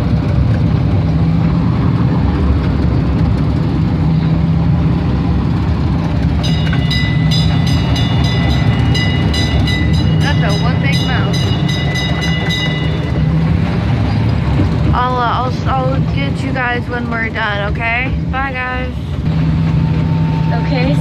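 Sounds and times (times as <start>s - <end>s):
small train rumbling on track: 0.0s - 21.0s
high steady tones: 6.4s - 14.1s, 19.3s - 21.0s.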